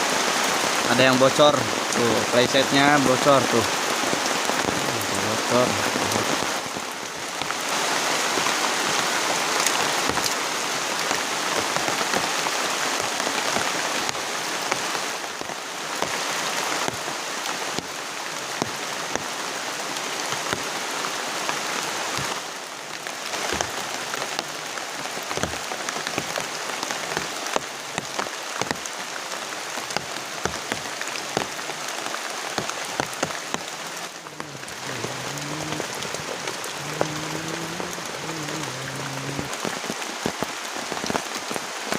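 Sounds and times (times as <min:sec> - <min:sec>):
heavy rain on a tent: 0:00.0 - 0:41.9
sharp water drips: 0:20.2 - 0:41.9.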